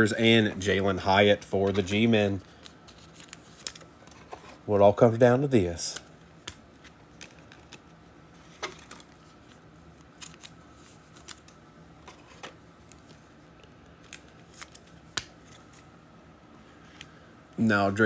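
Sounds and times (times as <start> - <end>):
trading cards sliding and clicking: 5.9 - 15.9.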